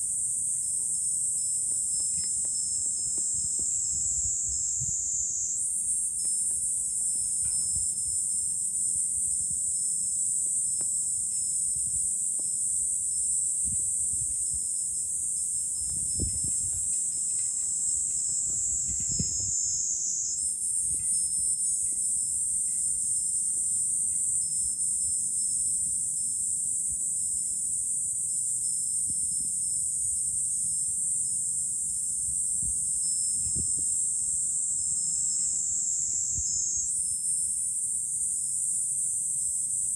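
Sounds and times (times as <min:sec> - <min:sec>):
cicada chorus drone: 0:00.0 - 0:39.9
wind rumble on microphone: 0:01.9 - 0:08.4, 0:11.4 - 0:22.0, 0:32.2 - 0:34.6, 0:35.4 - 0:36.9.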